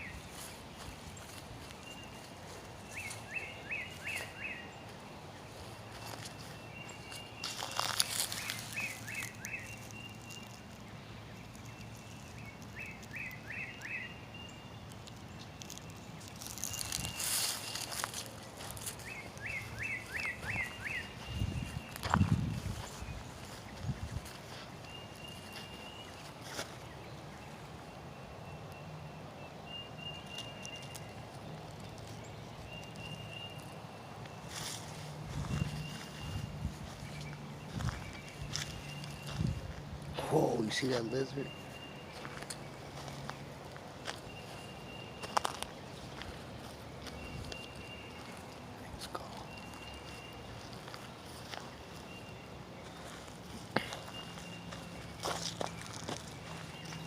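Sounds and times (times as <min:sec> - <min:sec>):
footsteps on a trail: 0:00.0 - 0:14.0, 0:14.7 - 0:27.8, 0:30.1 - 0:57.0
bird chirping: 0:00.0 - 0:57.0
outdoor background noise: 0:00.0 - 0:57.0
crackles or rustles: 0:05.6 - 0:13.9, 0:14.9 - 0:21.0.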